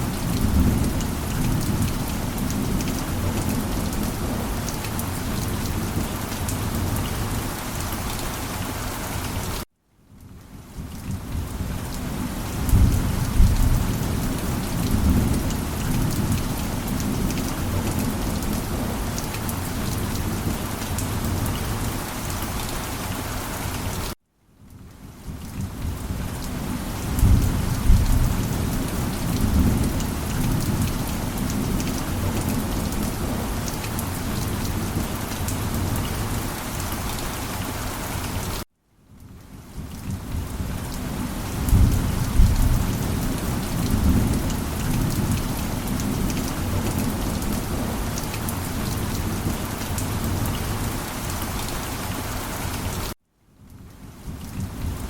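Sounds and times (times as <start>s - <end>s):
heavy rain: 0.0s - 55.0s
thunder rumble: 27.0s - 33.6s, 41.2s - 50.8s.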